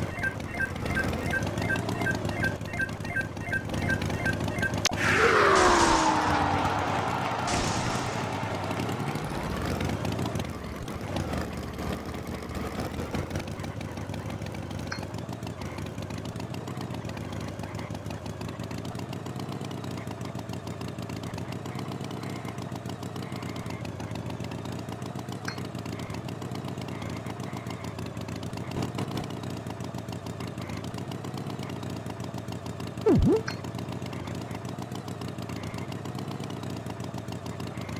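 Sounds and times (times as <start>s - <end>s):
tractor engine idling: 0.0s - 15.4s.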